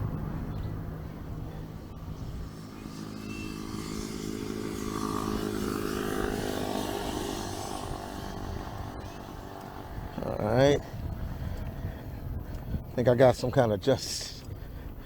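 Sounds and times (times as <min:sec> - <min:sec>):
vehicle engine passing by: 0:00.0 - 0:11.0.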